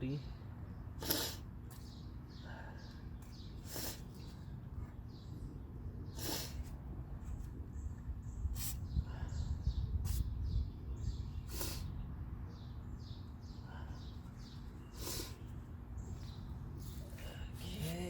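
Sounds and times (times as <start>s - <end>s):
small birds chirping: 0.0s - 18.0s
short hissing bursts: 8.5s - 8.9s, 10.0s - 10.4s, 11.5s - 11.9s.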